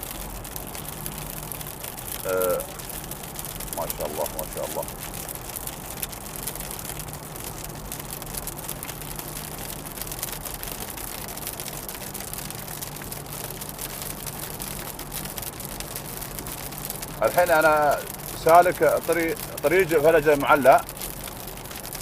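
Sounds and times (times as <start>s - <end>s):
engine and road hum: 0.0s - 22.0s
heavy rain hitting a car: 0.0s - 22.0s.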